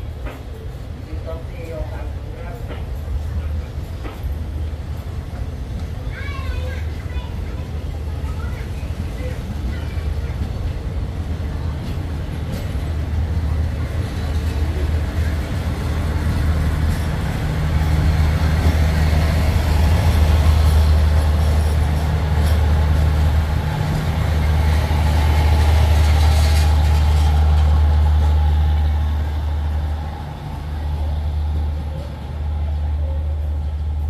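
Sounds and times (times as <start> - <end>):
diesel train rumbling past: 0.0 - 34.0.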